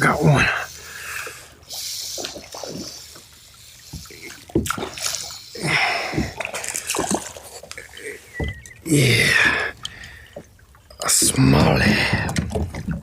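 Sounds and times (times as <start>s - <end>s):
fish splashing at water surface: 1.7s - 8.7s.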